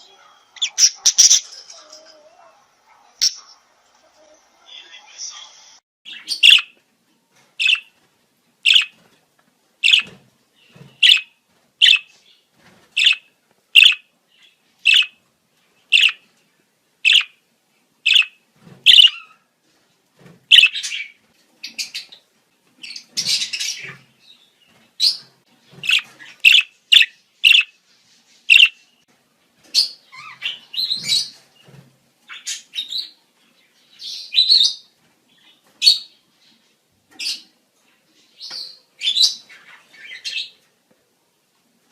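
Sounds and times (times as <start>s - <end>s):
budgerigar chirping: 0.6s - 1.5s, 6.1s - 6.7s, 7.6s - 7.9s, 8.7s - 8.9s, 9.8s - 10.1s, 11.0s - 12.1s, 13.0s - 13.2s, 13.8s - 14.1s, 14.9s - 15.2s, 15.9s - 16.2s, 17.1s - 17.4s, 18.1s - 19.3s, 20.5s - 21.0s, 25.8s - 27.7s, 28.5s - 28.8s.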